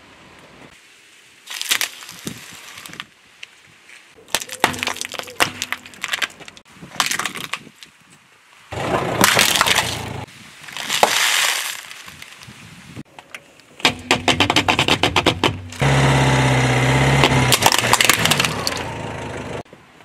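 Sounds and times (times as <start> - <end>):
plastic eggs cracking: 4.3 - 7.7, 17.5 - 18.9
plastic cup crunching: 4.3 - 7.8, 10.7 - 12.5, 17.5 - 18.8.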